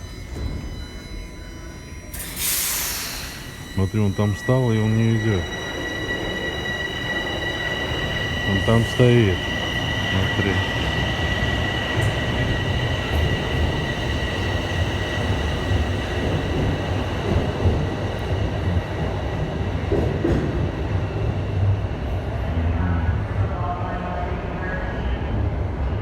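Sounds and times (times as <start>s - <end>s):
high whine: 0.0s - 18.8s
subway train rumble: 0.0s - 26.0s.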